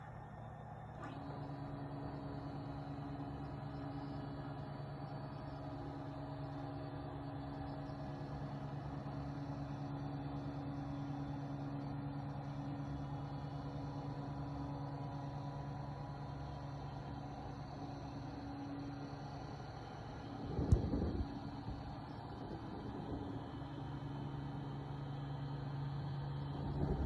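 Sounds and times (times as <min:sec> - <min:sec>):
click: 0:20.6 - 0:21.0.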